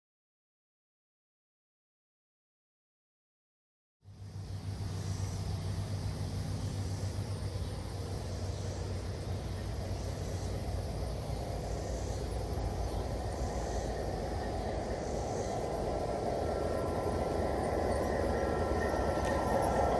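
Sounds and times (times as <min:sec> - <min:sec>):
train rumbling: 0:04.1 - 0:19.9.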